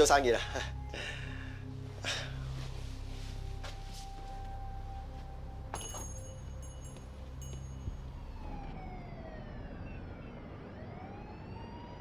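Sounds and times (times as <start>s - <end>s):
low steady rumble: 0.0s - 11.3s
high chime-like tinkles: 5.7s - 8.3s
siren wailing: 7.9s - 12.0s.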